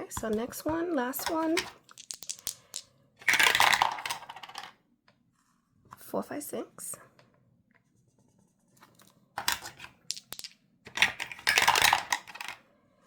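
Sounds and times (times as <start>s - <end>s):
dice clattering on hard surface: 1.2s - 4.7s, 9.4s - 12.6s.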